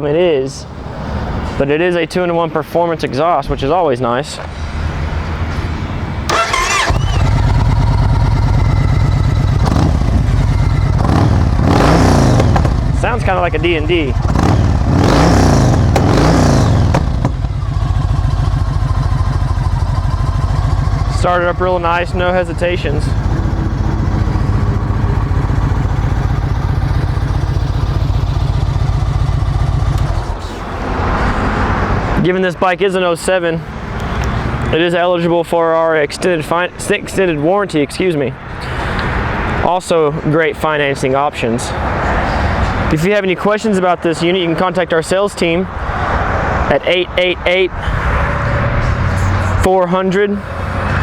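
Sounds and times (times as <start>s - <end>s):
motorcycle starter turning: 6.3s - 13.0s, 14.2s - 30.4s
motorcycle engine idling: 6.3s - 30.6s.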